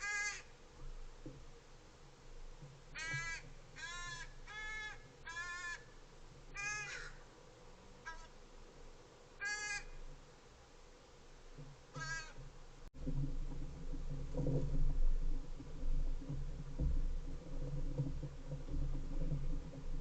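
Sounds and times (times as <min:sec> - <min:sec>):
crow cawing: 0:00.0 - 0:00.5, 0:03.0 - 0:06.0, 0:06.6 - 0:07.2, 0:08.0 - 0:08.3, 0:09.4 - 0:10.0, 0:11.9 - 0:12.4.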